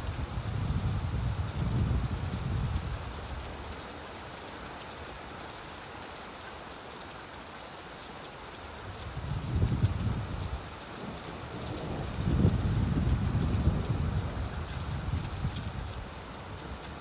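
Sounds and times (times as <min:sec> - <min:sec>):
rain hissing: 0:00.0 - 0:17.0
distant thunder rumble: 0:11.1 - 0:16.0.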